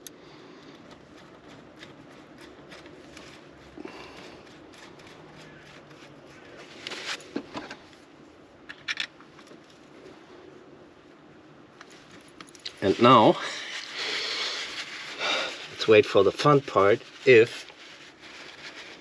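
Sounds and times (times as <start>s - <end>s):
hand work clicks and scrapes: 0.0s - 7.8s.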